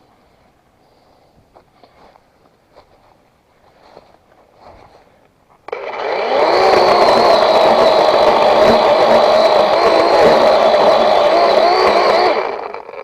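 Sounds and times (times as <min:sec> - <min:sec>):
rustling: 0:00.0 - 0:05.7
faint footsteps: 0:00.1 - 0:05.7
small engine starting and running: 0:05.7 - 0:13.0.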